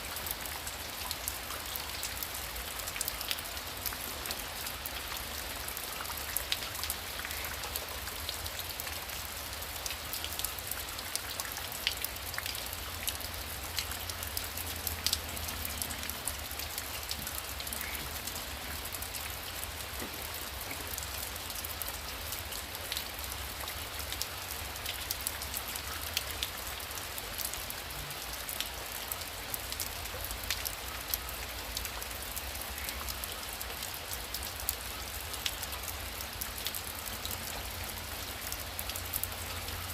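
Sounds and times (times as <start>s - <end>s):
heavy rain: 0.0s - 39.9s
raindrops pattering on surface: 0.0s - 39.9s.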